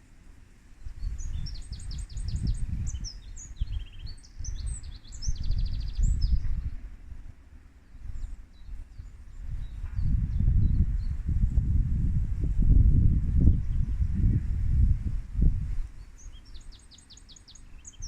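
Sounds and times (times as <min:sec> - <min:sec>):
wind rumbling on microphone: 0:00.7 - 0:18.0
bird chirping and trilling: 0:01.0 - 0:06.7, 0:16.0 - 0:18.0.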